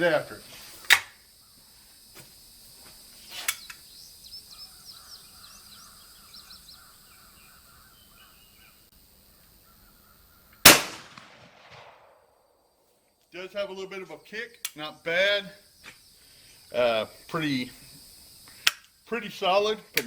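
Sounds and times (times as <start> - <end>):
birds chirping faintly: 0.0 - 2.1, 3.0 - 10.8
shotgun shot: 10.6 - 12.3.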